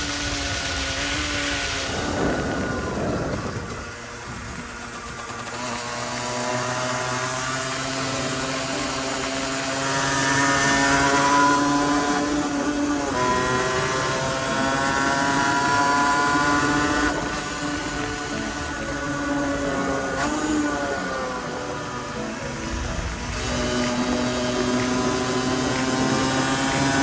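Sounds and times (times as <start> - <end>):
two-stroke engine revving: 0.0 - 27.0.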